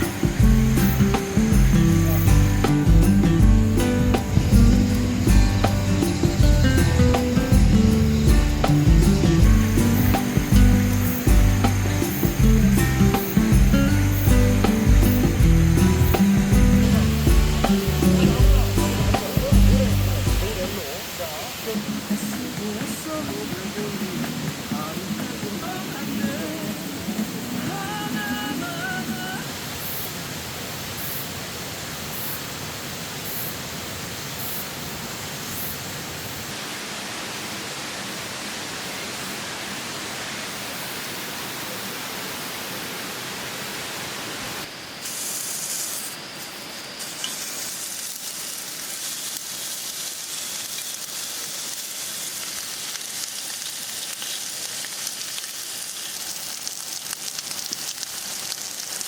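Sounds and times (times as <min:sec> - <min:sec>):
pork sizzling in a pan: 0:00.0 - 0:28.6, 0:44.6 - 0:59.0
steady rushing hiss: 0:00.0 - 0:59.0.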